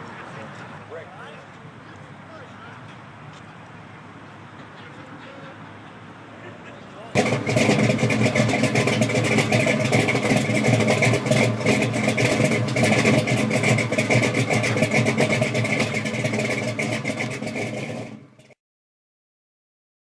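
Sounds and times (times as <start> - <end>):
car engine running: 7.2 - 18.5.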